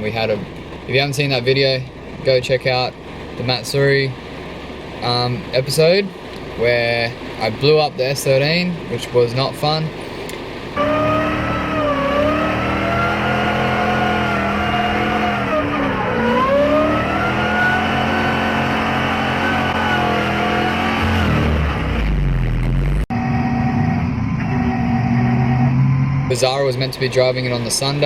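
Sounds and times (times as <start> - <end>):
car engine revving high: 10.7 - 28.0.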